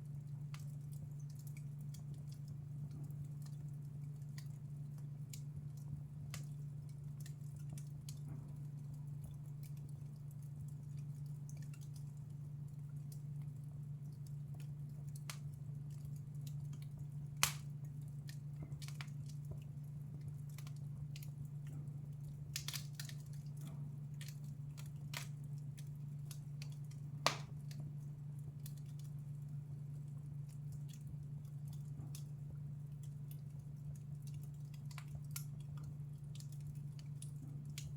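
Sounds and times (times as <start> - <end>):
steady low hum: 0.0 - 37.9
wood fire crackling: 0.0 - 37.9
sharp pops of fire: 17.4 - 17.7, 22.5 - 23.4, 26.6 - 27.7.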